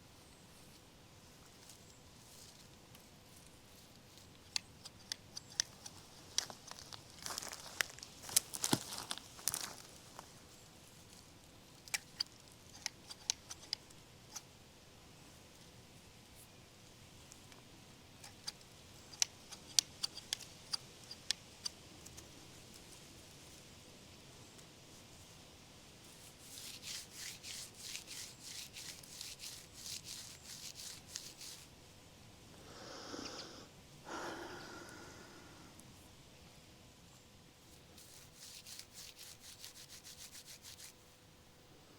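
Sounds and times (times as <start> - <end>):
leaves crinkling: 5.5 - 12.6, 26.0 - 31.7, 37.6 - 41.0.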